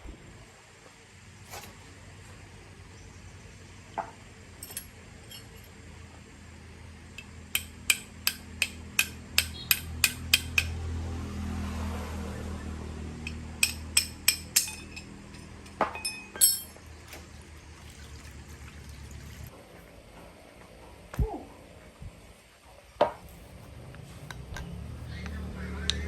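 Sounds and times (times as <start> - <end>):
sharp metallic taps: 7.2 - 10.8, 13.2 - 14.9.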